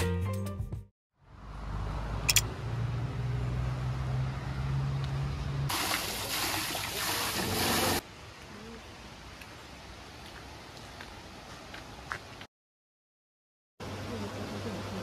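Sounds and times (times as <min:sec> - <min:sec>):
rushing splashing water: 0:05.7 - 0:08.0.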